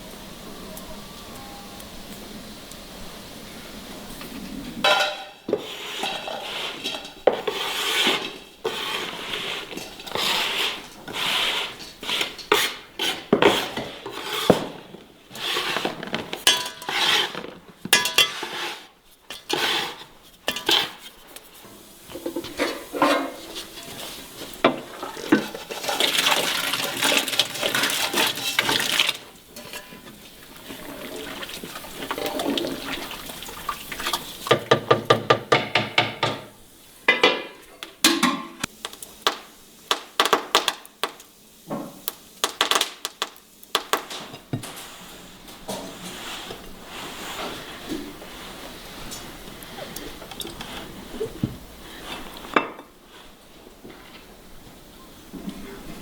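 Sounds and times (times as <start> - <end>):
dishes and utensils clattering: 4.8 - 21.2, 22.1 - 38.7.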